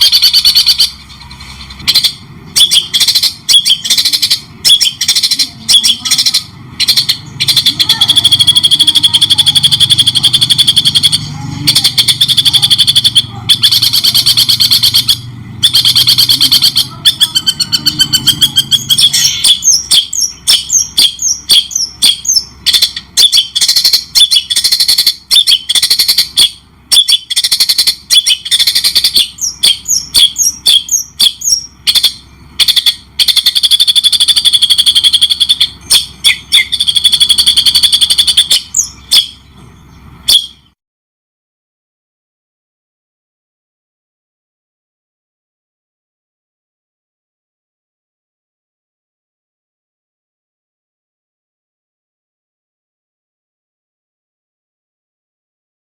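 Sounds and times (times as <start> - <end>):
songbird singing: 0.0 - 40.8.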